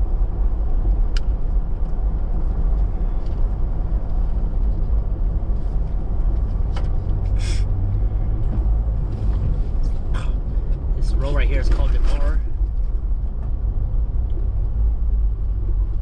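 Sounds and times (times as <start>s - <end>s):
vehicle engine and tyre noise: 0.0s - 16.0s.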